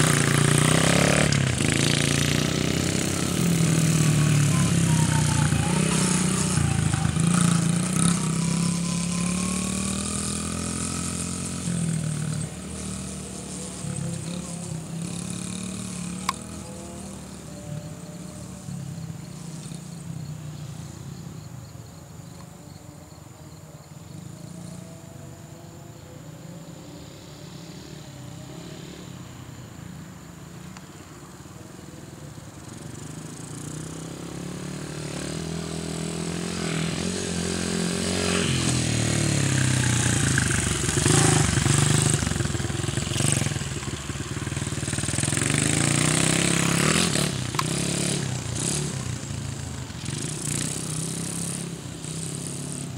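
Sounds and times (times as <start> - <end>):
dirt bike engine revving: 0.0 - 20.1, 32.7 - 52.9.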